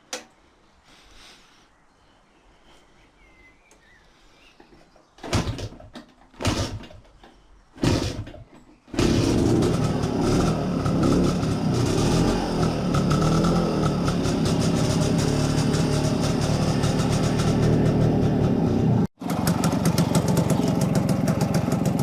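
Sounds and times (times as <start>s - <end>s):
motorcycle engine starting: 5.2s - 22.0s
motorcycle engine running: 8.9s - 22.0s.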